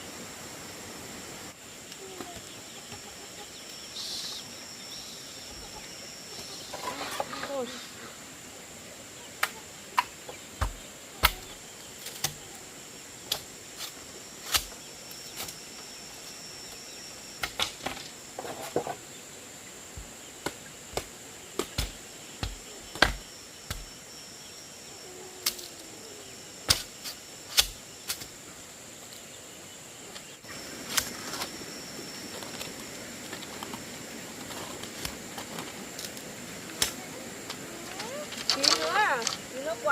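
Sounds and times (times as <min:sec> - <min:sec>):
high-pitched insect drone: 0:00.0 - 0:39.9
bamboo being chopped: 0:09.4 - 0:12.4, 0:13.3 - 0:14.8, 0:20.0 - 0:24.0, 0:26.7 - 0:28.3.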